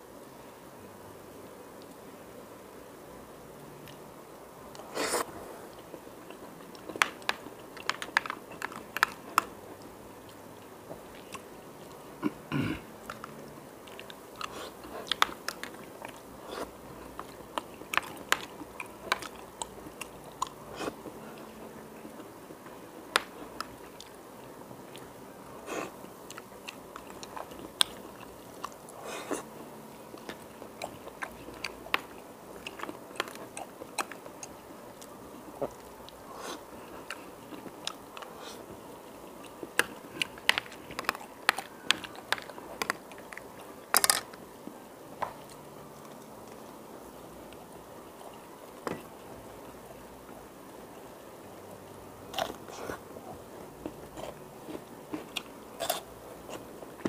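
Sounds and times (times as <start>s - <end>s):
person chewing and biting: 12.6s - 21.0s, 52.3s - 53.0s.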